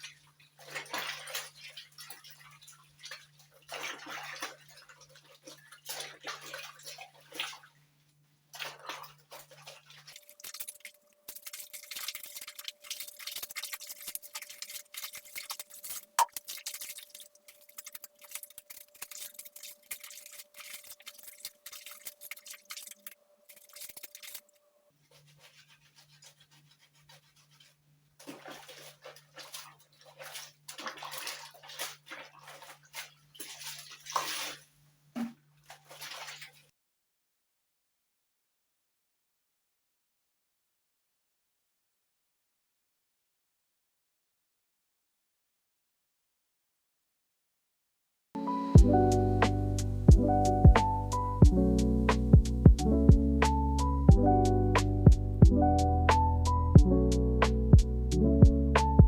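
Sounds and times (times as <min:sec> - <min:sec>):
brush scrubbing: 0:08.6 - 0:34.7, 0:35.6 - 0:36.6.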